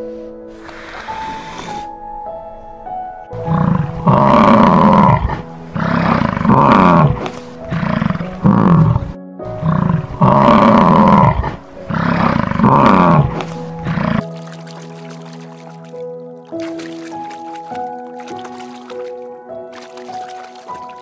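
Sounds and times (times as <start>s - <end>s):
piano music: 0.0s - 21.0s
large animal calling loudly: 3.4s - 14.2s.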